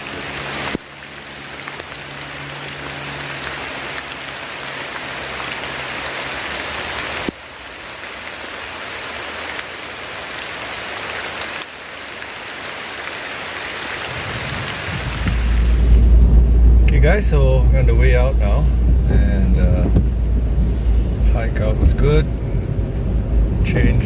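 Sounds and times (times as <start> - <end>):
heavy rain on foliage: 0.0 - 17.0, 17.6 - 24.0.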